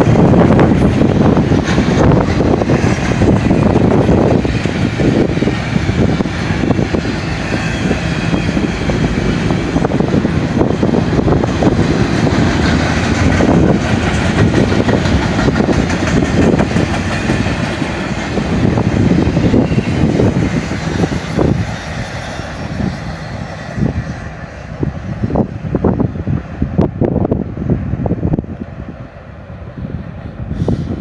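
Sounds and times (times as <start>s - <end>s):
steel wheels clattering on rails: 0.0s - 24.4s
train cars rolling past: 0.0s - 31.0s.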